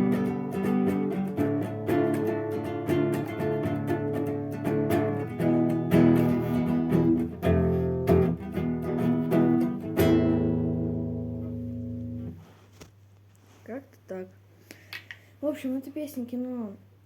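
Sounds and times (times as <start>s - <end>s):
acoustic guitar strumming: 0.0s - 12.4s.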